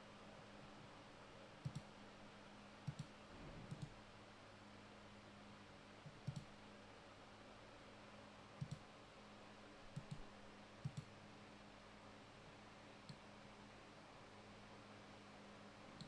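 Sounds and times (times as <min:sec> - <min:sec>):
faint clicks: 0:01.6 - 0:01.9, 0:02.9 - 0:03.1, 0:06.1 - 0:06.5, 0:08.6 - 0:08.8, 0:09.9 - 0:10.2, 0:10.8 - 0:11.1.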